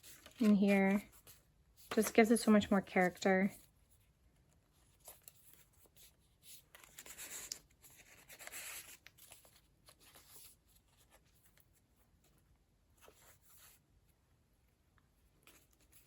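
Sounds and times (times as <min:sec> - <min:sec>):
paper pages rustling: 0:00.0 - 0:03.7, 0:04.6 - 0:12.4.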